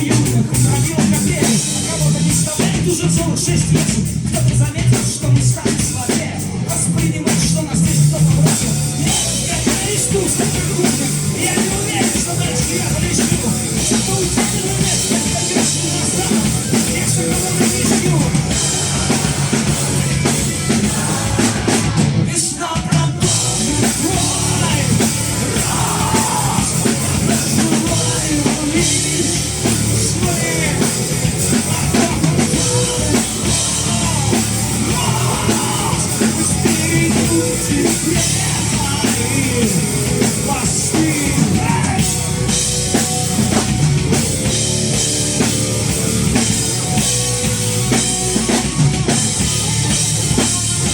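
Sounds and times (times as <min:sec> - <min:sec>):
person singing: 0:00.0 - 0:42.5
drum kit: 0:00.0 - 0:50.9
rock band playing live: 0:00.0 - 0:50.9.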